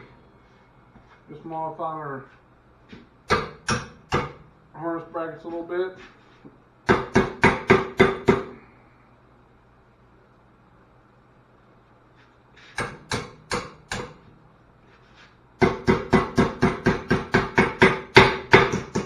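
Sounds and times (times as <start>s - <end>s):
hammer striking metal: 3.3s - 4.5s, 6.9s - 8.6s, 12.7s - 14.3s, 15.6s - 19.0s.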